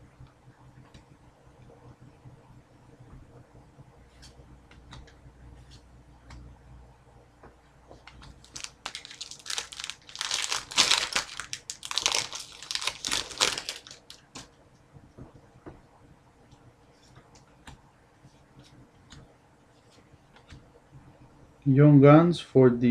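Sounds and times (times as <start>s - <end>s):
foil wrapper crinkling: 8.1s - 14.5s.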